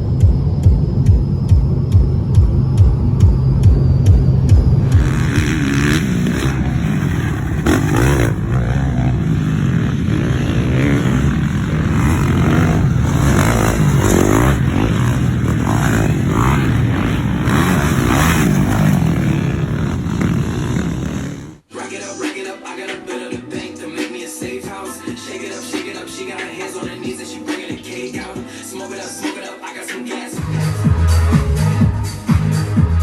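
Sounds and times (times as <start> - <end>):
loud rushing noise: 0.0 - 21.6
dirt bike engine revving: 0.0 - 21.7.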